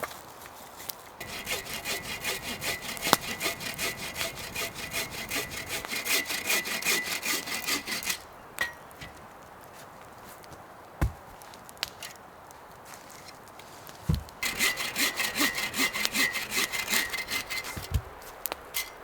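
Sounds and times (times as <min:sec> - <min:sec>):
hand saw cutting wood: 0:00.8 - 0:08.3, 0:14.4 - 0:19.0.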